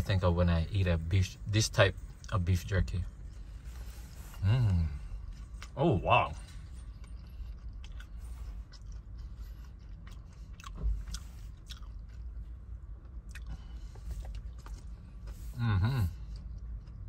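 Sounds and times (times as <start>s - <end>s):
person chewing: 6.4s - 17.0s.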